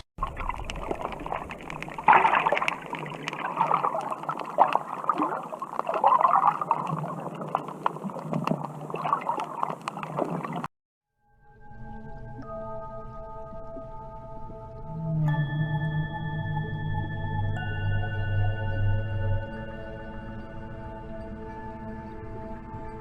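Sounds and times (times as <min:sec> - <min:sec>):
water gurgling and sloshing: 0:00.0 - 0:10.7.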